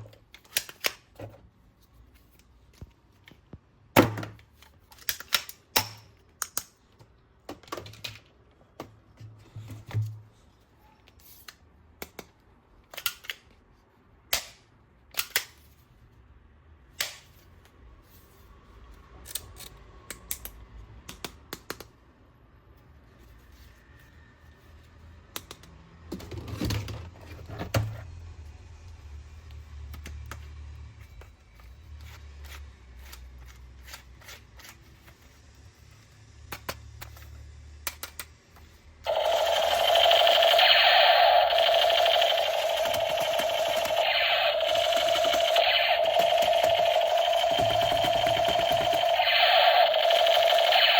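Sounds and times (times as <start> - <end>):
plastic toy parts clicking and knocking: 4.1 - 6.8.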